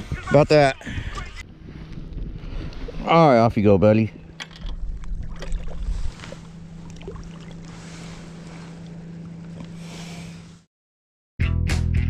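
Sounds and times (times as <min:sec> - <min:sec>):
wind on microphone: 0:00.0 - 0:03.1, 0:04.6 - 0:06.4
steady low hum: 0:00.1 - 0:10.7.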